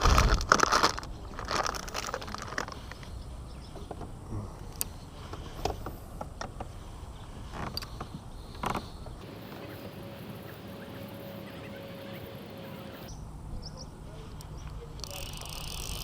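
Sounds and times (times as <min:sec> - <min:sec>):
fishing gear rustling: 0:00.0 - 0:04.2.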